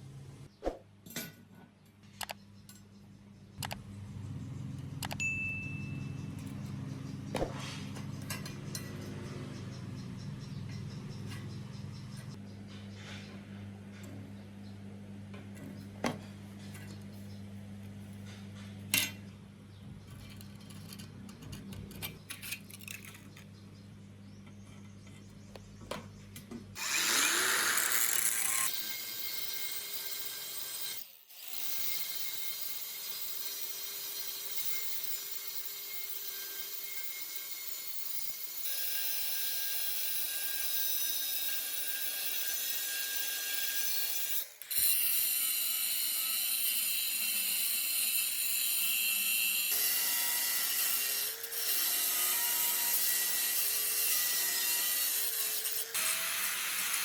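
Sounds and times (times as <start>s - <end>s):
sharp clicks: 3.6s - 3.8s
handheld power tool running: 26.8s - 57.0s.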